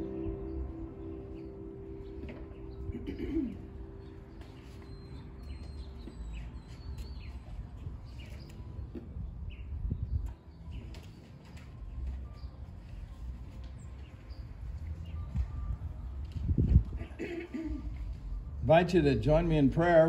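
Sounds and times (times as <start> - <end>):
hymn music: 0.0 - 7.6
birds chirping: 0.0 - 20.0
dove cooing: 2.2 - 5.0.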